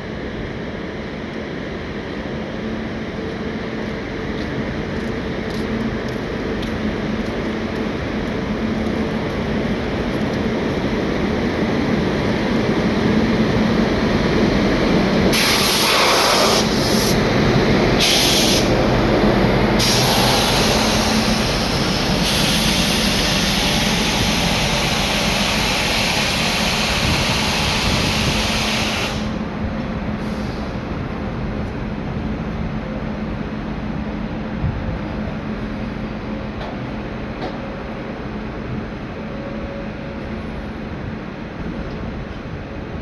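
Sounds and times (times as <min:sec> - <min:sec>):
train wheels rumbling on rails: 0:00.0 - 0:43.0
harsh hiss: 0:15.3 - 0:17.2, 0:19.8 - 0:29.4.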